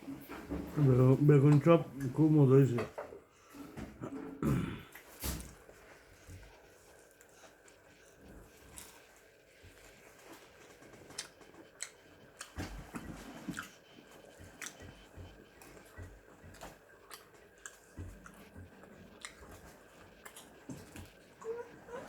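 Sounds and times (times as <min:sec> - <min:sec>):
person chewing food: 0:04.8 - 0:22.0.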